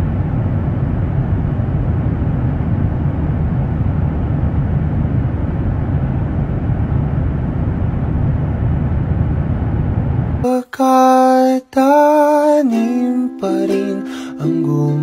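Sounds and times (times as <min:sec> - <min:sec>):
airliner cabin engine rumble: 0:00.0 - 0:10.5.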